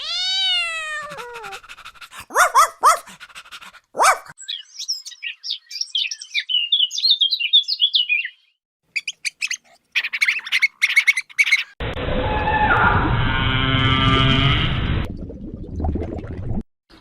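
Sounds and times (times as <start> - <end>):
birds chirping: 2.2 - 11.8.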